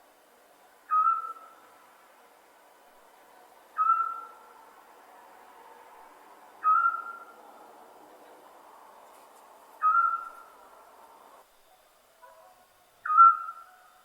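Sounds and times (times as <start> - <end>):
owl whistled calls: 0.9 - 1.6, 3.8 - 4.4, 6.6 - 7.4, 9.8 - 10.6, 13.0 - 13.9.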